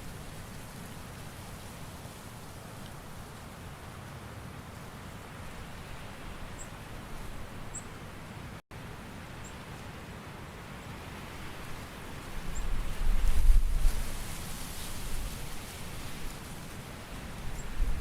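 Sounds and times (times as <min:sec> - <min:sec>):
hissing nature ambience: 0:00.0 - 0:13.0.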